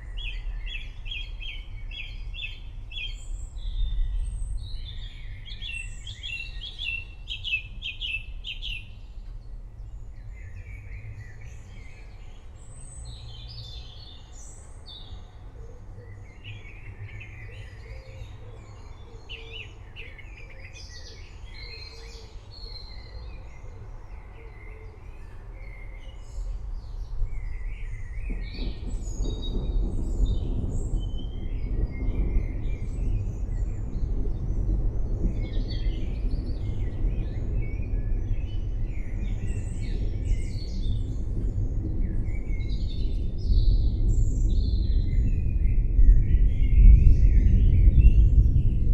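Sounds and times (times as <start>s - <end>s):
forest birds chirping: 0.0s - 48.9s
steady low rumble: 26.2s - 48.9s
deep noisy rumble: 27.3s - 48.9s.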